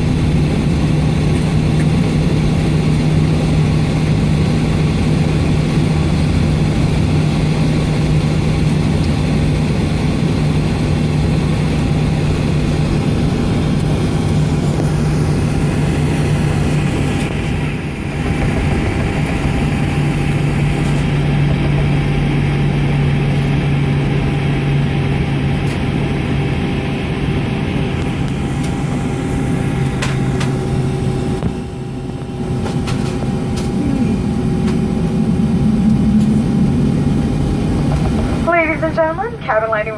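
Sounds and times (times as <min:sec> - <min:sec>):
aircraft cabin hum: 0:00.0 - 0:39.9
constant tones: 0:27.2 - 0:39.9.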